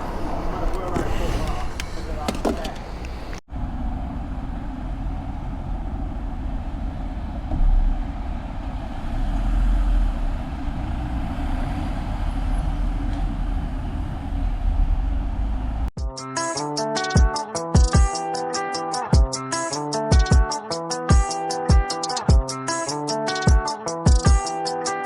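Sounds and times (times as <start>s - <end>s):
motorcycle engine and road rumble: 0.0s - 15.9s
wind buffeting microphone: 0.0s - 15.9s
music: 16.0s - 25.0s.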